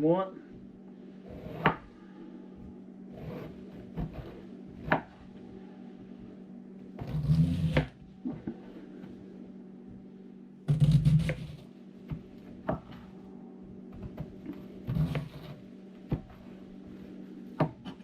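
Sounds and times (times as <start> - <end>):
low hum: 0.0 - 18.0
knife slicing cabbage: 7.0 - 7.9, 10.7 - 11.6.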